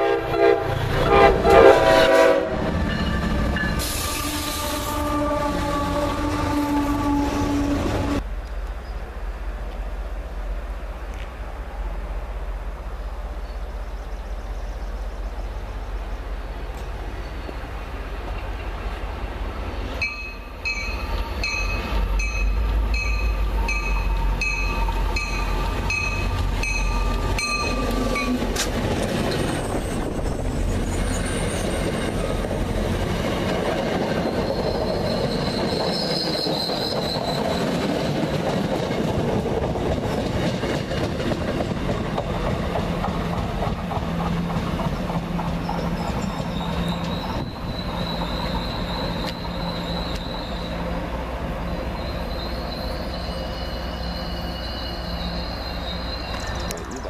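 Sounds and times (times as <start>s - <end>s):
train passing with deep rumble: 0.0s - 57.0s
high squeal of wheels on rails: 0.7s - 8.2s, 19.8s - 57.0s
wheel-on-rail noise: 13.1s - 57.0s
warning bell ringing: 20.0s - 28.4s.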